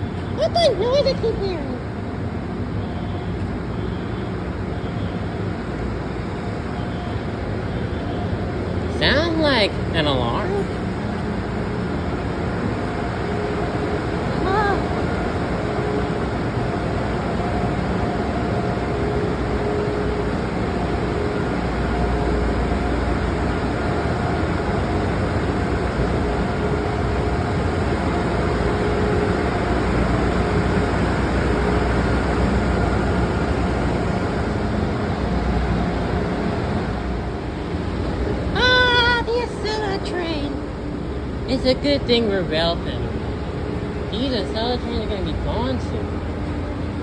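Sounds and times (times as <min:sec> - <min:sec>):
train idling rumble and hum: 0:00.0 - 0:47.0.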